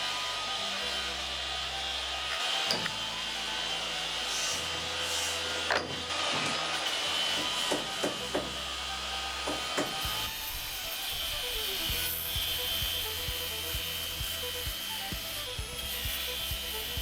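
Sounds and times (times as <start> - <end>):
wire wheel grinding paint: 0.0 - 17.0
sharp knocks: 7.4 - 8.6.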